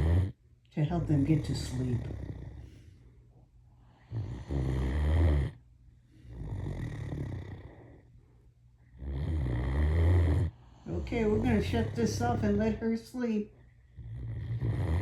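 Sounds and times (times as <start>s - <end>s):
dog snoring: 0.0s - 0.4s, 1.0s - 3.1s, 3.8s - 8.1s, 8.9s - 13.0s, 13.8s - 15.0s
dog breathing quietly: 1.4s - 5.0s.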